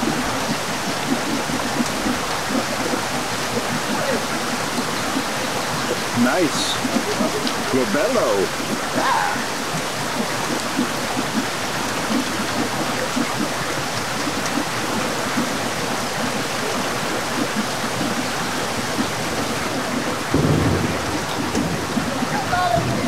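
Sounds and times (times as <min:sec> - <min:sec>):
heavy rain hissing: 0:00.0 - 0:13.1, 0:18.3 - 0:23.0.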